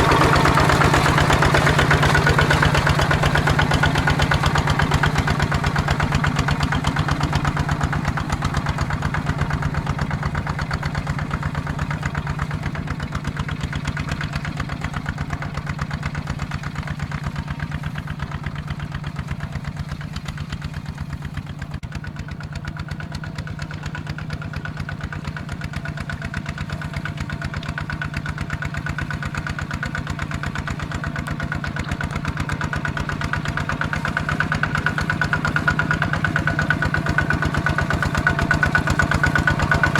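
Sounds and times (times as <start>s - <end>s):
tractor diesel engine chugging: 0.0s - 39.9s.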